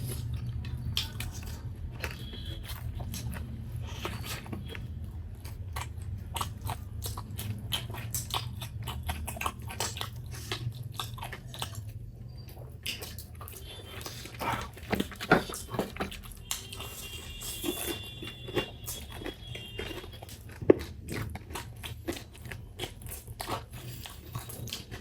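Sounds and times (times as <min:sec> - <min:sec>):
person chewing food: 0:00.0 - 0:25.0
wet mouth clicks and smacks: 0:12.8 - 0:13.5.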